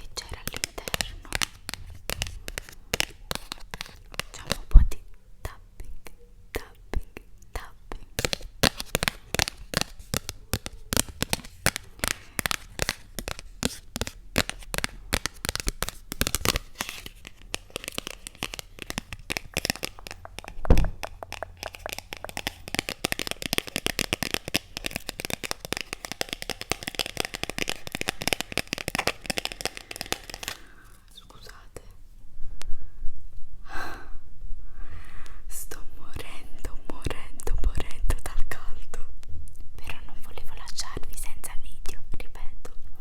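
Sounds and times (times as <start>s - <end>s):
sharp tapping: 17.5s - 30.6s.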